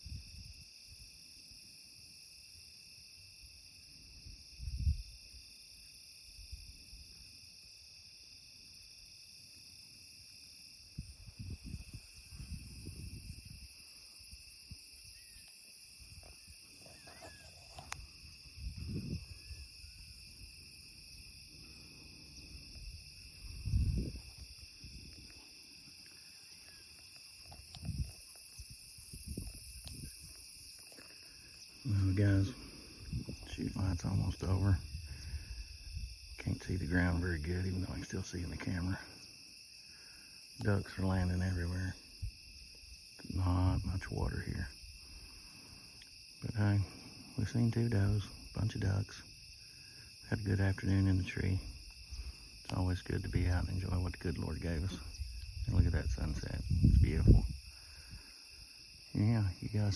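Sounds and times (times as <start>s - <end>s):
wind gusting on microphone: 0.0s - 0.7s, 4.2s - 5.4s, 10.8s - 15.3s, 16.0s - 25.4s, 27.5s - 30.7s, 31.7s - 38.8s, 42.0s - 45.1s, 50.4s - 58.3s
crickets chirping: 0.0s - 59.9s.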